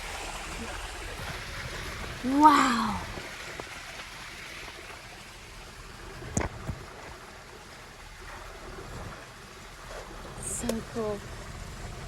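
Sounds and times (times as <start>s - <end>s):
stream running over rocks: 0.0s - 12.0s.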